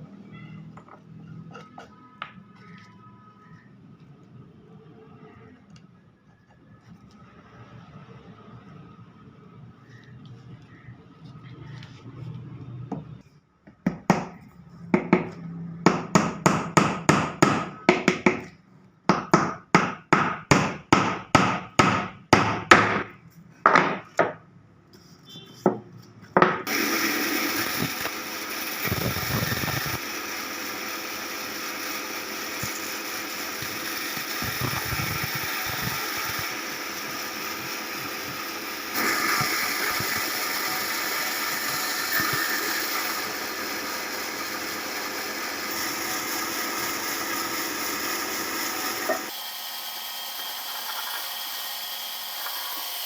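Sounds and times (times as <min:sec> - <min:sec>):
steady machine noise: 0:26.7 - 0:53.0.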